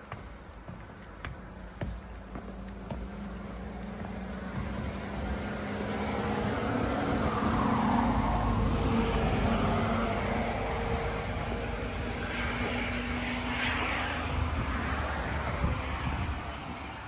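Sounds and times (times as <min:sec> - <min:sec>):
road traffic: 0:00.0 - 0:17.0
low engine hum: 0:01.5 - 0:17.0
vehicle passing close by: 0:04.0 - 0:17.0.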